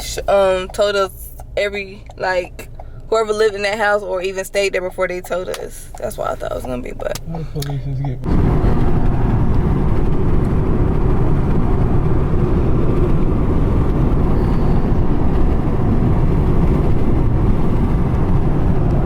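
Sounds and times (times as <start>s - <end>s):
road and wind noise: 0.0s - 19.0s
vehicle rumble: 0.0s - 19.0s.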